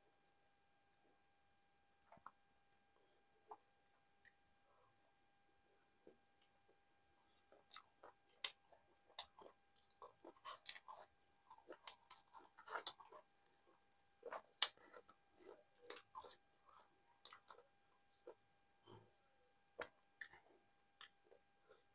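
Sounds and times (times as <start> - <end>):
person chewing with wet smacks: 2.1 - 2.8, 6.0 - 21.9.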